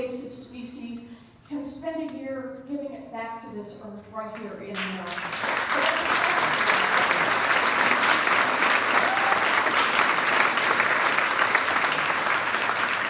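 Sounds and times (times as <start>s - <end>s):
audience applauding: 4.8s - 13.0s
audience cheering: 5.3s - 13.0s.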